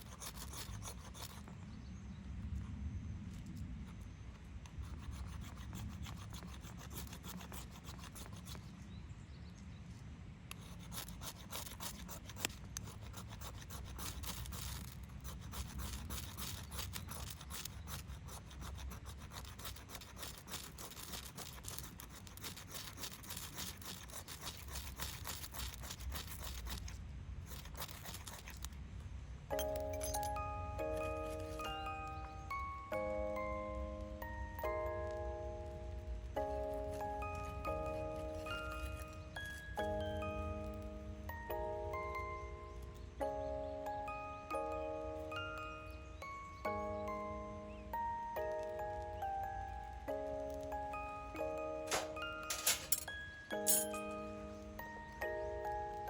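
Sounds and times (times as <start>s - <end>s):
tool rasping on wood: 0.0s - 1.5s, 4.9s - 8.7s, 10.6s - 28.7s, 36.4s - 40.8s
small crackly ticks: 10.5s - 28.8s.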